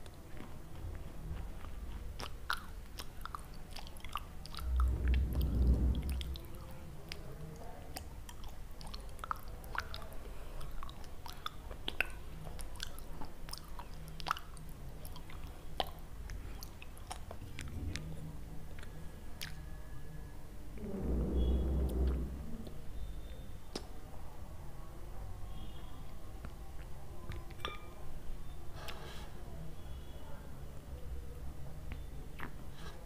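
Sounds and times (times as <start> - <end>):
crunchy chewing: 0.0 - 5.0
low rumble: 4.6 - 7.2, 20.7 - 22.8.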